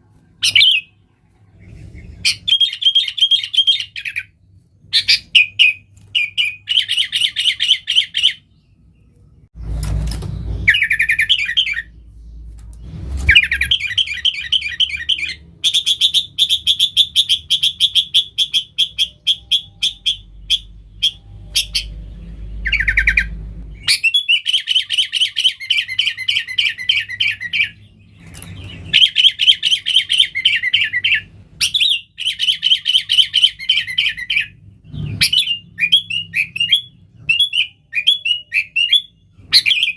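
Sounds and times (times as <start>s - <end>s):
bulbul chattering song: 13.3s - 34.6s.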